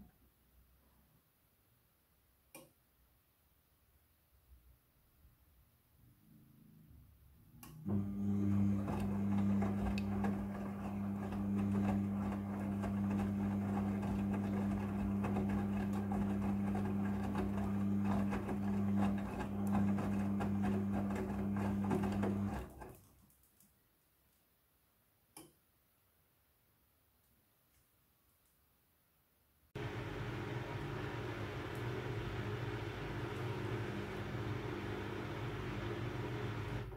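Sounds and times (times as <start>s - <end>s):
faint click: 7.6s - 7.8s
washing machine humming: 7.8s - 23.0s, 29.8s - 36.9s.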